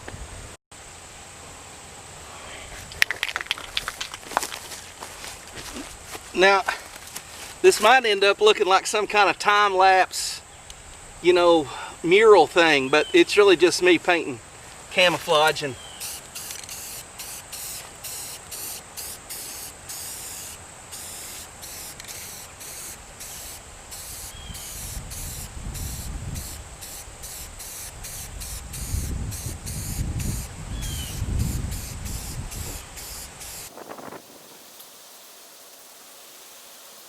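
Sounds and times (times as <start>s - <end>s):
wind rumble on microphone: 0.0s - 0.6s, 24.3s - 34.6s
aerosol spray can hissing: 16.0s - 37.0s.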